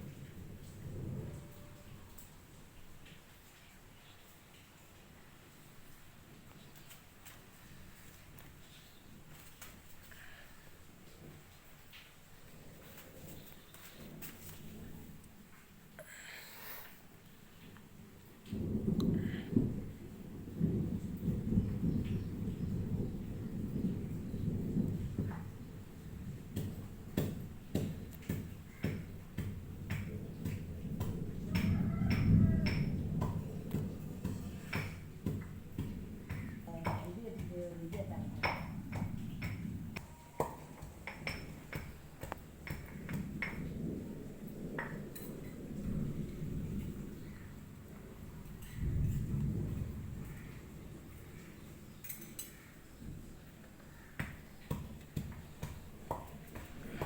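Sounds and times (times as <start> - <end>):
low rumbling noise: 29.1 - 52.1.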